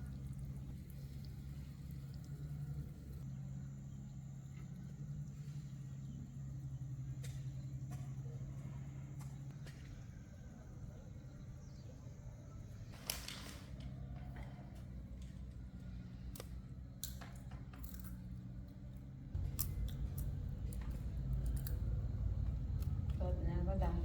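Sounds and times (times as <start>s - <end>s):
steady low hum: 0.0s - 13.0s, 14.0s - 24.0s
low rumble: 19.4s - 24.0s.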